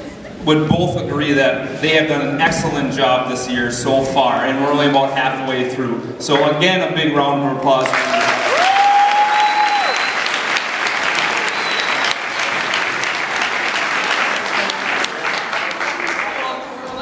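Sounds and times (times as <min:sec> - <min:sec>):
high cheer: 0:07.8 - 0:16.3
crowd applauding: 0:07.8 - 0:16.9.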